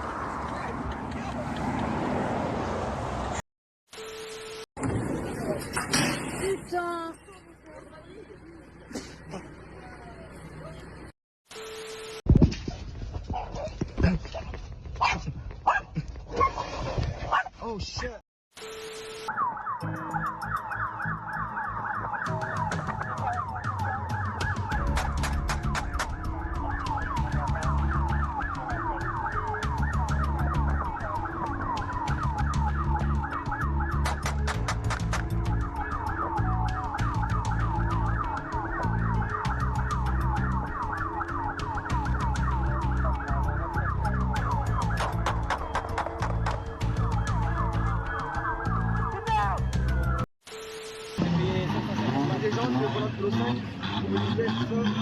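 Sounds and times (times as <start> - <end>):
fast yelp siren: 19.2 - 34.7, 35.3 - 50.2
stepping bass line: 20.2 - 50.2
steady beat: 20.3 - 50.1.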